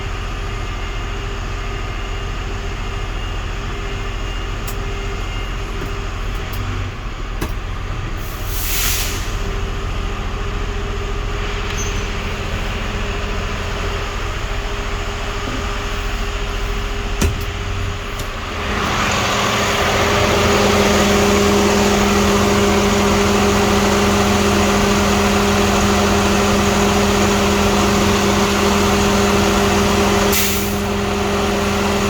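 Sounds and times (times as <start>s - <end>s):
diesel engine droning: 0.0s - 32.0s
short hiss: 8.3s - 9.4s.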